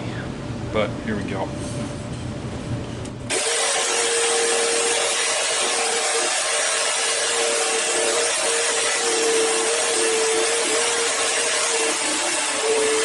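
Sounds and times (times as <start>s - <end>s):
tabletop saw cutting wood: 3.3s - 13.0s.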